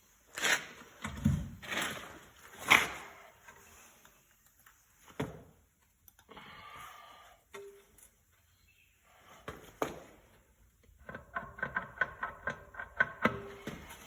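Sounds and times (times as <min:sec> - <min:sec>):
metal parts knocking and clunking: 0:10.9 - 0:13.9.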